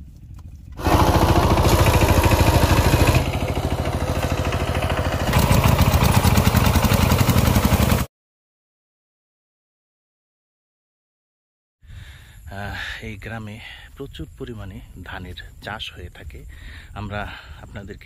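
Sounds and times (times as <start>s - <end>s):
small engine running: 0.8s - 8.1s.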